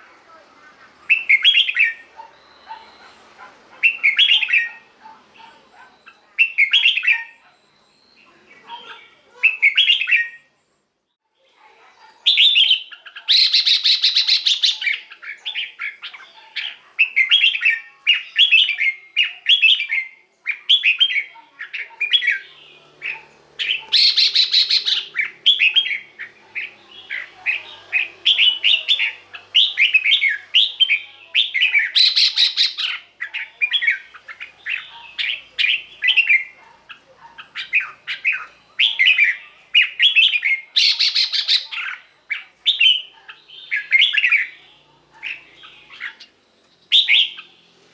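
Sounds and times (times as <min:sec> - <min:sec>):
bird singing whistled phrases: 0:01.1 - 0:03.0, 0:03.8 - 0:04.8, 0:06.0 - 0:08.3, 0:08.9 - 0:10.5, 0:12.3 - 0:16.0, 0:16.6 - 0:22.5, 0:23.1 - 0:36.6, 0:37.6 - 0:42.0, 0:46.9 - 0:47.5
harsh bird call bursts: 0:12.3 - 0:15.1, 0:22.1 - 0:36.5, 0:37.5 - 0:42.0.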